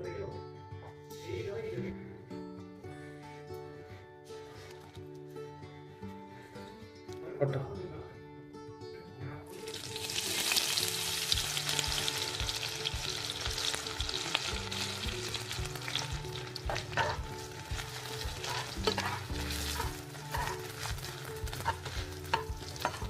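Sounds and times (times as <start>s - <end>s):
oil sizzling with frying onions: 9.5s - 23.0s
metal spatula scraping a pan: 15.8s - 23.0s.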